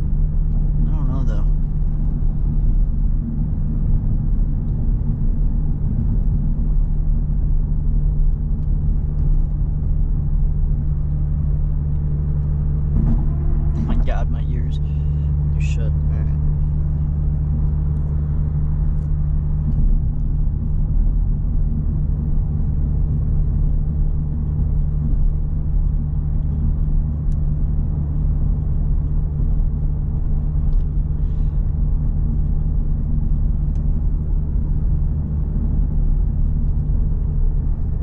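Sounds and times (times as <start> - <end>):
car engine rumble: 0.0 - 38.0
road noise inside car: 0.0 - 38.0.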